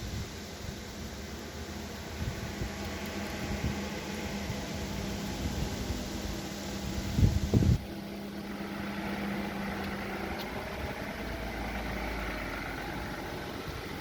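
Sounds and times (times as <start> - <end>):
wind buffeting microphone: 2.0 - 8.1.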